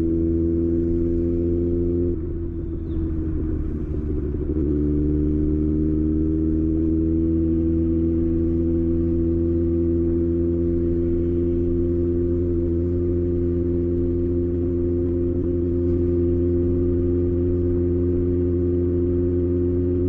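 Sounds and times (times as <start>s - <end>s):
motorcycle engine idling: 0.8s - 6.2s, 8.4s - 19.1s.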